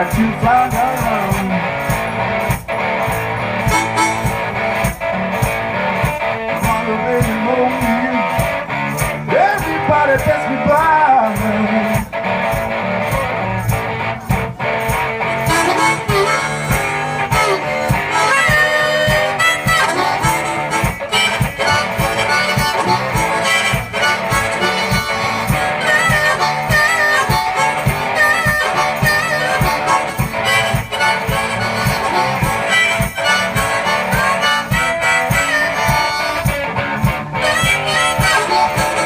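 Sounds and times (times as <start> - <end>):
guitar: 0.0 - 39.0
steady beat: 0.0 - 39.0
harmonica solo: 0.7 - 10.8, 14.6 - 39.0.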